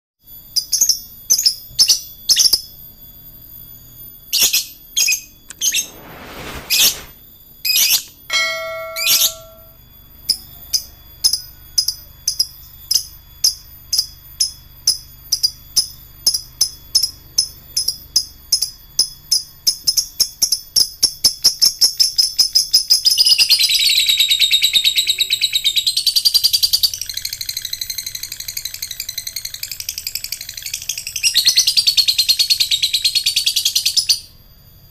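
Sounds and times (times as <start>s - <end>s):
lovebird chirping and trilling: 4.4s - 7.2s, 7.8s - 9.7s.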